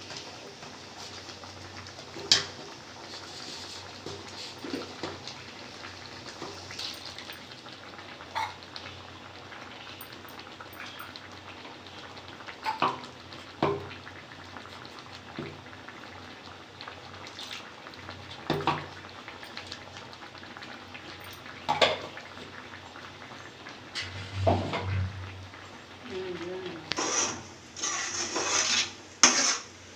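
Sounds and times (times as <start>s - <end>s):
food hissing in a pan: 0.0s - 7.2s, 23.9s - 25.4s, 26.5s - 29.9s.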